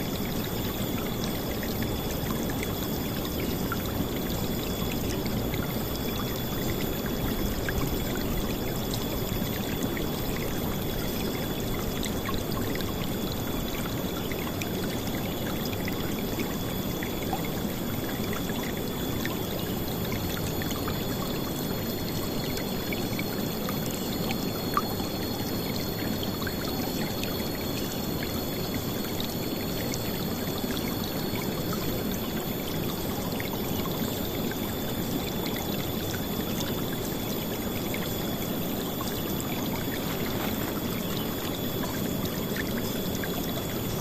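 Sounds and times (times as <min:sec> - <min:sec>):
river water flowing and splashing: 0:39.0 - 0:43.8.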